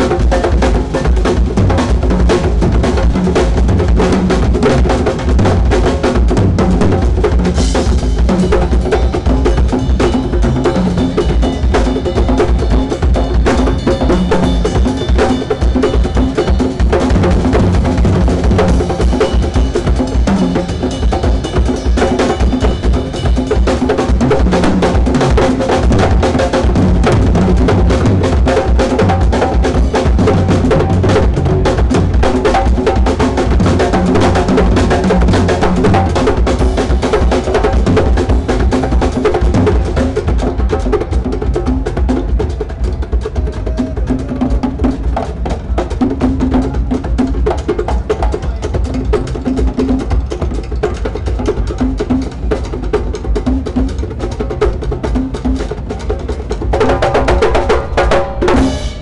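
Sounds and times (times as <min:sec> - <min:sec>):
drum kit played loudly: 0:00.0 - 0:59.0.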